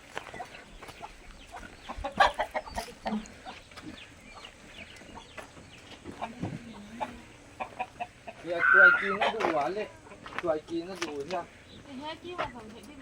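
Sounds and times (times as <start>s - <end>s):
chicken calls: 0.0s - 10.4s
chickens clucking: 0.0s - 13.0s.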